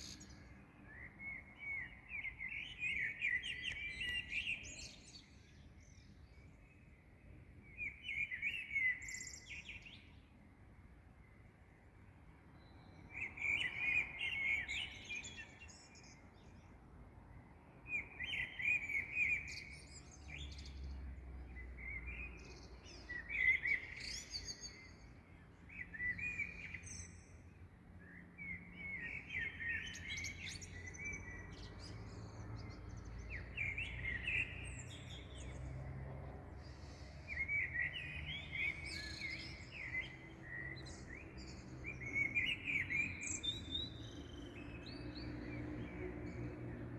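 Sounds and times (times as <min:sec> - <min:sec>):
songbirds warbling: 0:28.6 - 0:46.6.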